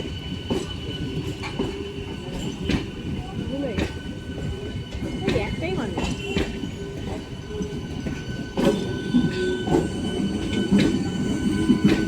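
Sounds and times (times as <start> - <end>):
train rolling past: 0.0 - 12.0.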